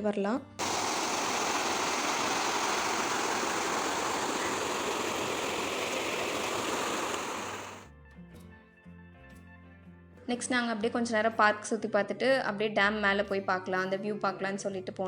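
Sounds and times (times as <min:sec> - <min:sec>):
rushing water: 0:00.6 - 0:07.8.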